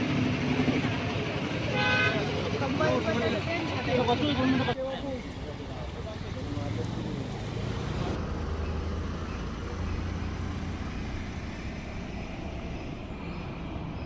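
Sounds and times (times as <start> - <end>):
road noise: 0.0 - 14.0
vehicle engine humming: 0.0 - 14.0.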